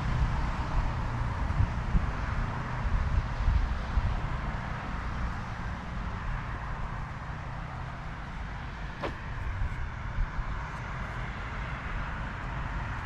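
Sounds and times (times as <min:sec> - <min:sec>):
road traffic rumble: 0:00.0 - 0:13.0
street hiss: 0:09.0 - 0:09.6.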